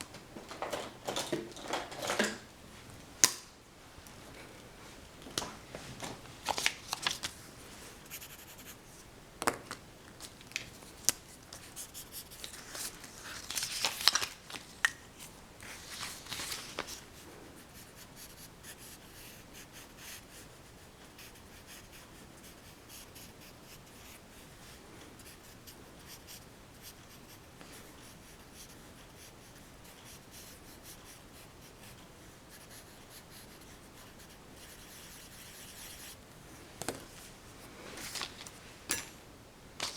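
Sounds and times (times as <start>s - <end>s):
pencil scratching on paper: 8.1s - 8.8s.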